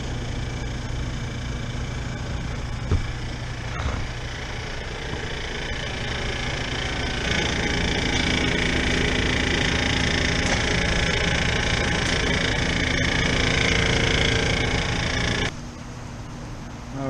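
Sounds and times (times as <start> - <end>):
air conditioning unit humming: 0.0 - 17.0.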